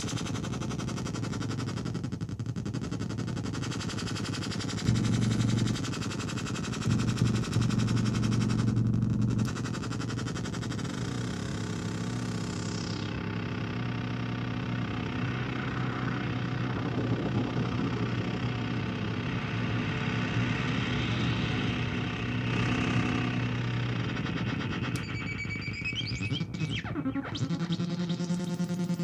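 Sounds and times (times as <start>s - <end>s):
analog synthesizer drone: 0.0s - 29.0s
steady low hum: 4.6s - 29.0s
swooping pitched tones with echoes: 4.9s - 9.5s, 14.3s - 29.0s.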